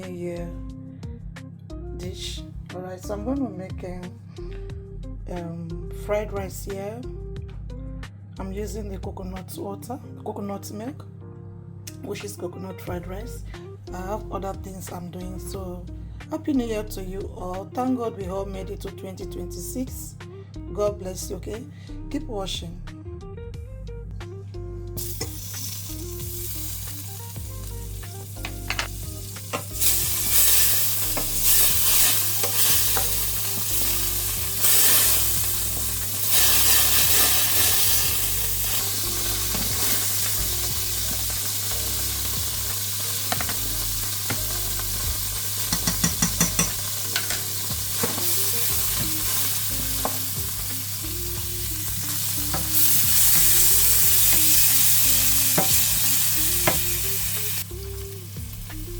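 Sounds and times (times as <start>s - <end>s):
food sizzling in a pan: 25.0s - 58.9s.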